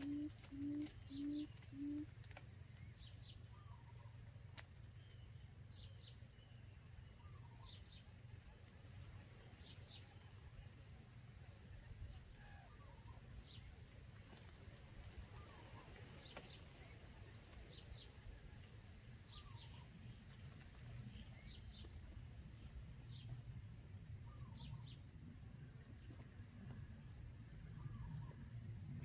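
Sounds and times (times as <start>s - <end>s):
quail calls: 0.0s - 2.1s
steady low rumble: 18.1s - 29.0s.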